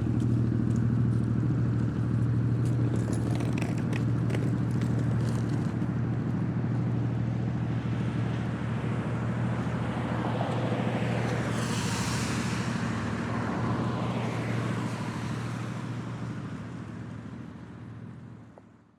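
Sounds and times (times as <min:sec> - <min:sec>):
hissing rush: 0:11.4 - 0:14.9.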